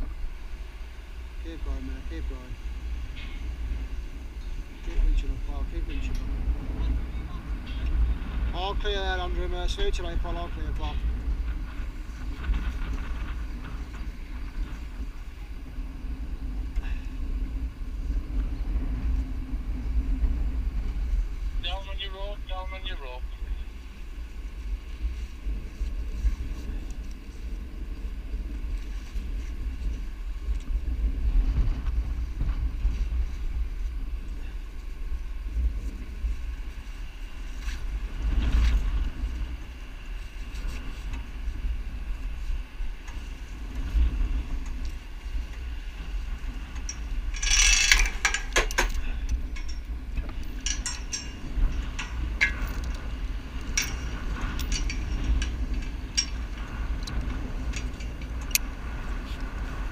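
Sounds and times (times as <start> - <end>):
engine low rumble: 0.0 - 59.9
wind: 0.0 - 59.9
metallic clanking and rattling: 46.8 - 58.6.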